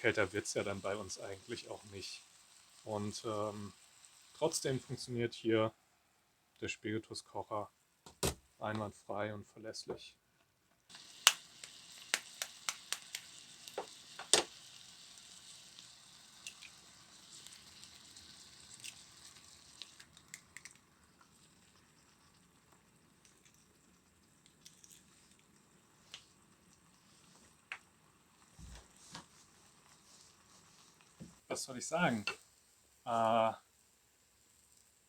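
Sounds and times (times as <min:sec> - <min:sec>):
sharp crackles and pops: 0:00.0 - 0:05.0, 0:10.9 - 0:33.1
food sizzling in a pan: 0:00.0 - 0:05.3, 0:10.9 - 0:35.0.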